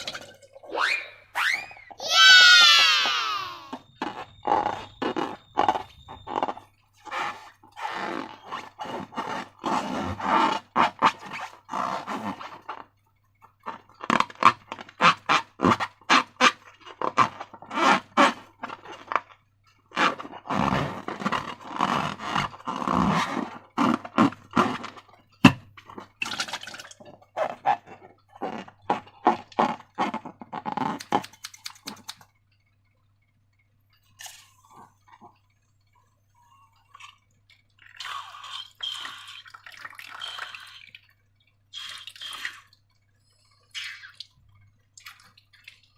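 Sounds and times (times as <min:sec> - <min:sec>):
slime squelching and crackling: 0:03.3 - 0:12.9.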